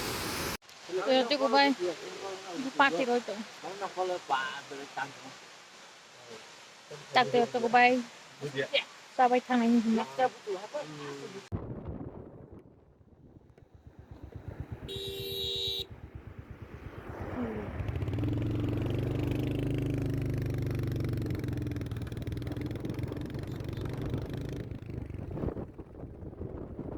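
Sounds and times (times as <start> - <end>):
vehicle engine running: 13.7 - 25.7
brief high tone: 14.9 - 15.9.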